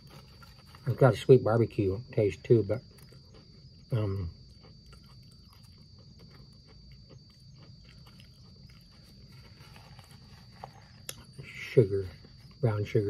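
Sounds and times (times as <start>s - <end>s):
potato chips crunching: 0.0s - 1.3s, 2.7s - 12.7s.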